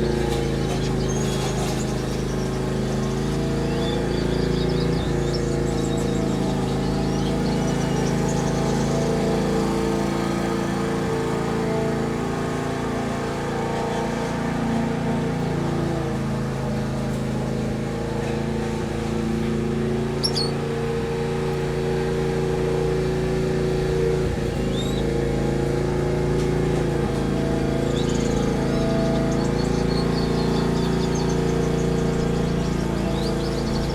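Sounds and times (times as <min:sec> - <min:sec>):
low drone with held pitches: 0:00.0 - 0:16.2, 0:17.8 - 0:33.9
high bird chirps: 0:20.2 - 0:20.6, 0:27.6 - 0:33.9.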